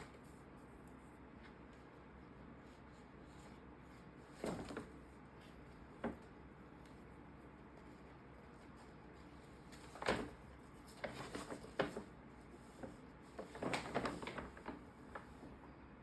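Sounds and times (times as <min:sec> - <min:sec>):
paper bag crinkling: 0:13.4 - 0:15.3.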